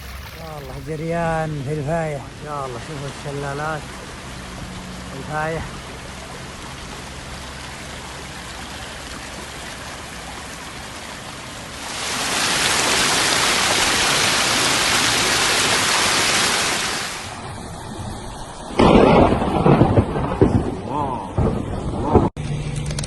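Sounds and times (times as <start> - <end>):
water rushing over small falls: 0.0 - 17.4.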